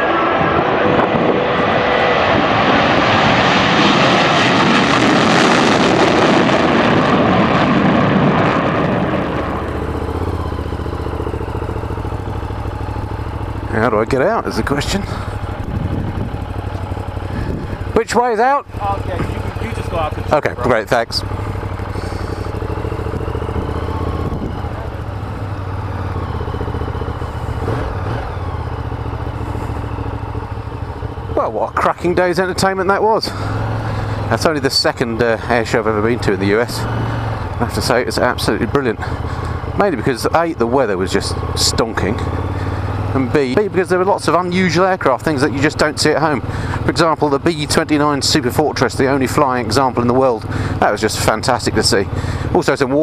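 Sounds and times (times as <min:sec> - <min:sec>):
aircraft flying past: 0:00.0 - 0:13.6
motorcycle engine running: 0:00.0 - 0:53.0.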